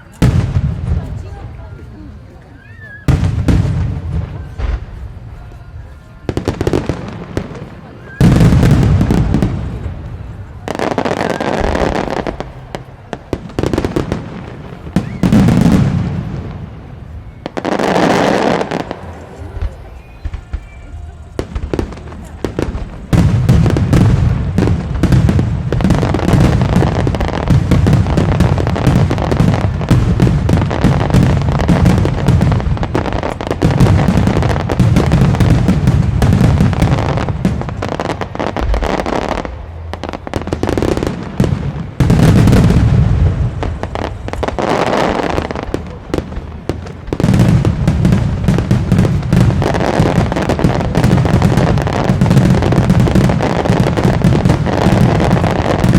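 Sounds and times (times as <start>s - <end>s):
fireworks bursts and crackles: 0.0s - 55.9s.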